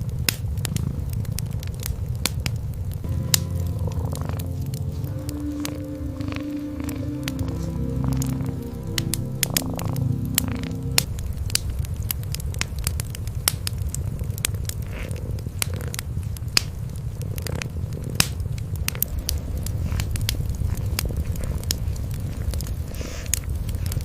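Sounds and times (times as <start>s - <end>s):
wood fire crackling and popping: 0.0s - 24.0s
cats purring: 3.8s - 11.2s, 13.4s - 24.0s.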